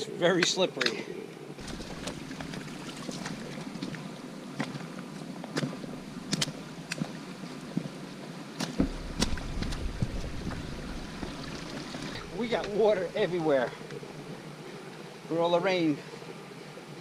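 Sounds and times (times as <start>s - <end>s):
outdoor hiss: 0.0s - 17.0s
footsteps on rocky trail: 1.6s - 8.0s
wind rumble on microphone: 8.8s - 14.4s.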